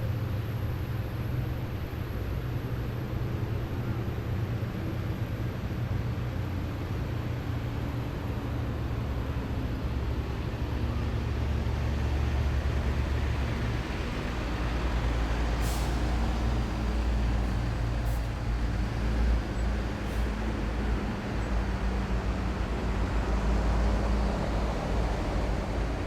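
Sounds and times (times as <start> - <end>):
diesel engines rumbling: 0.0 - 26.0
air brakes hissing: 14.8 - 18.7.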